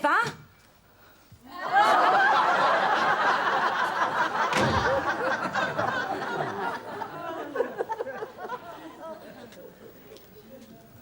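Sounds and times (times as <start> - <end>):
studio audience laughing: 1.6 - 9.5.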